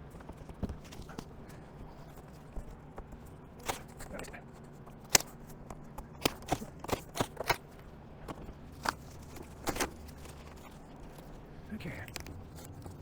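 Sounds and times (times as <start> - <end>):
cardboard clicks and snaps: 2.5 - 4.2, 4.9 - 7.7, 8.4 - 10.8.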